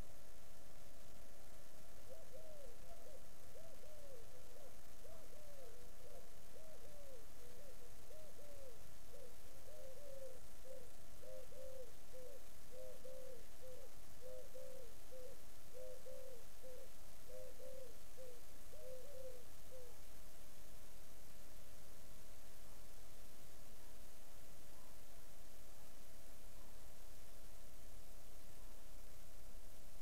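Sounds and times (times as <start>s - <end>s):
bird hooting: 2.1s - 20.0s.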